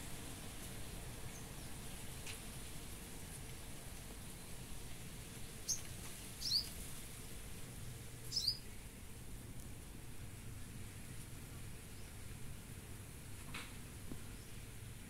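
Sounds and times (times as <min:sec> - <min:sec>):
bird chirping: 0:06.4 - 0:06.7, 0:08.3 - 0:08.7.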